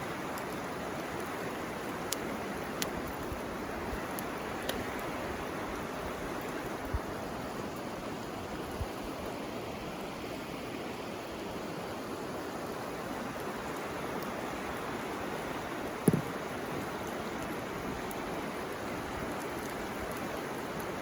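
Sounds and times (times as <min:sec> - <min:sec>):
river water rushing: 0:00.0 - 0:21.0
soft low thumps: 0:16.1 - 0:16.3.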